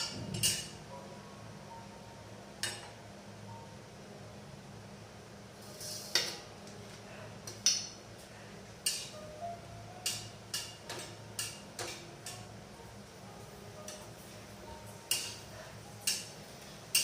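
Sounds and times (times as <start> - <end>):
metal utensils clinking: 0.0 - 0.8, 8.8 - 9.2, 10.0 - 12.5, 14.8 - 17.0
low steady hum: 0.0 - 17.0.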